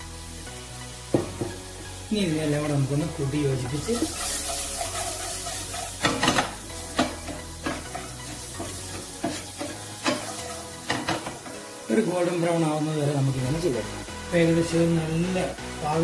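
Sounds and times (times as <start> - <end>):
potatoes sizzling in a pan: 0.0 - 16.0
wooden spoon scraping a pan: 3.5 - 11.6.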